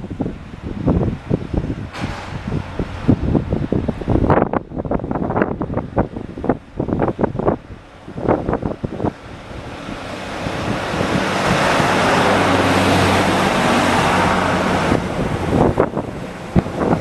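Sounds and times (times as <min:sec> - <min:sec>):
large vehicle passing: 0:00.0 - 0:17.0
wind buffeting microphone: 0:00.0 - 0:17.0.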